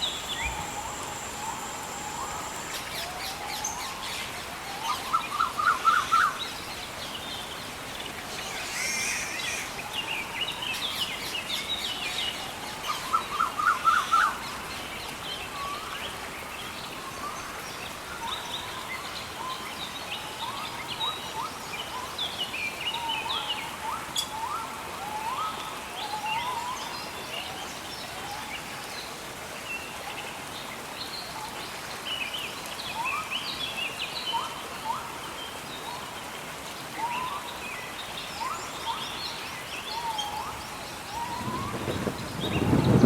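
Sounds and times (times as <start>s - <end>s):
gentle rain hiss: 0.0s - 43.0s
birds singing: 38.3s - 43.0s.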